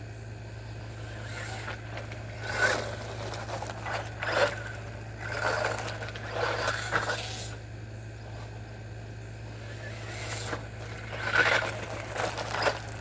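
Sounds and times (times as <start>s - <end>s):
electric motor whine: 0.0s - 13.0s
scraping on the ground: 0.9s - 7.6s, 9.5s - 13.0s.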